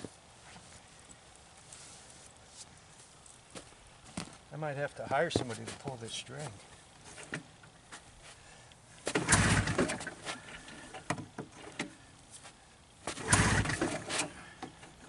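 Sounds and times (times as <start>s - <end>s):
engine cranking on recoil starter: 9.0s - 11.9s, 13.1s - 14.4s.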